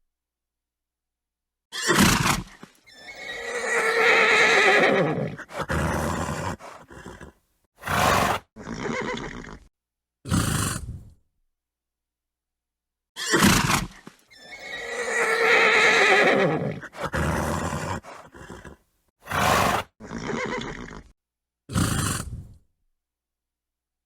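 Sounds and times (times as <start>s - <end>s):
horse whinnying: 1.7s - 9.7s, 13.2s - 21.1s
horse snorting: 1.9s - 9.7s, 10.3s - 11.2s, 13.3s - 21.1s, 21.7s - 22.6s.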